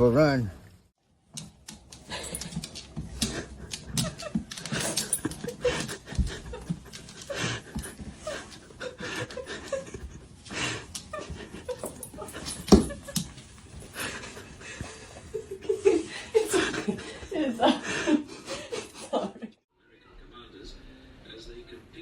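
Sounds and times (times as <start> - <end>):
scuffling and knocks: 1.4 - 16.7
dog panting: 1.4 - 18.8.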